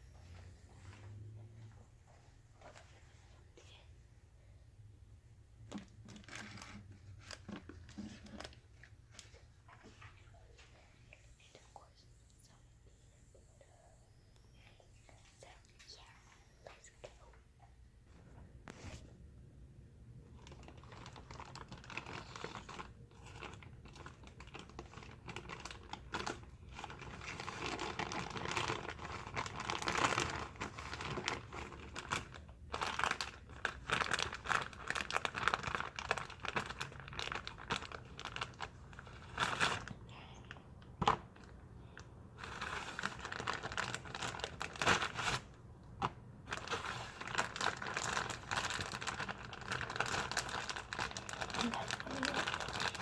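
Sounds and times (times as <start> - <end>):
packaging crinkling: 5.7 - 9.4, 20.3 - 39.9, 42.4 - 53.0.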